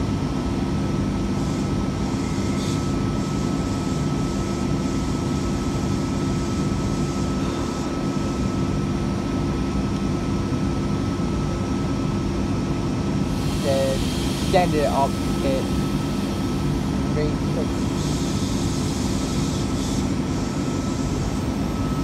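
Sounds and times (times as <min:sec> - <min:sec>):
train carriage humming: 0:00.0 - 0:22.0
thin high whine: 0:01.3 - 0:08.6, 0:13.3 - 0:22.0.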